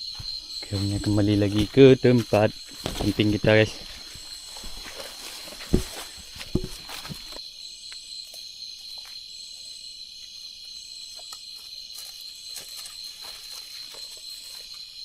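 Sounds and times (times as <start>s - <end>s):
footstep thumps: 0.0s - 7.4s
crickets chirring: 0.0s - 15.0s
higher pulsing insect chorus: 0.0s - 15.0s.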